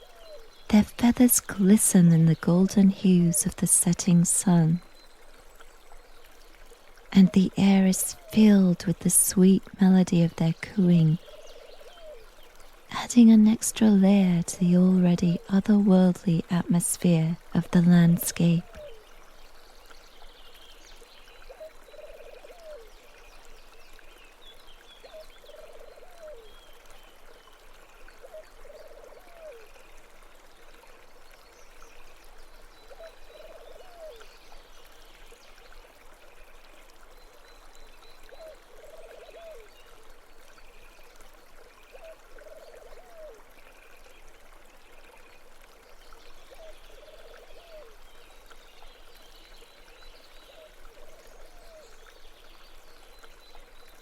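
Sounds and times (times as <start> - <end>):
doves cooing: 0.0 - 4.8, 7.2 - 12.4, 13.0 - 19.1, 21.5 - 23.0, 25.0 - 26.6, 28.2 - 29.7, 32.9 - 34.3, 38.3 - 40.1, 41.9 - 43.5, 46.5 - 48.0, 50.5 - 52.0
stream running water: 0.0 - 54.0.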